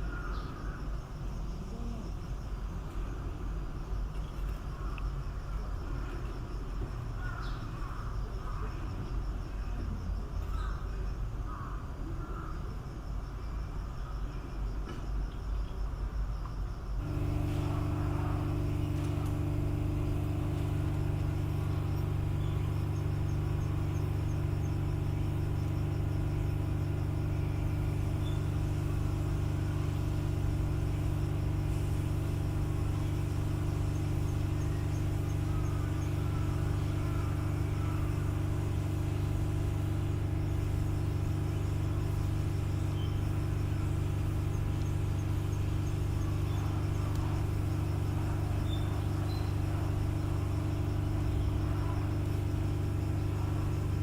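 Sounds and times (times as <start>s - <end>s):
low mechanical hum: 0.0s - 54.0s
faint high chirps: 17.0s - 53.8s.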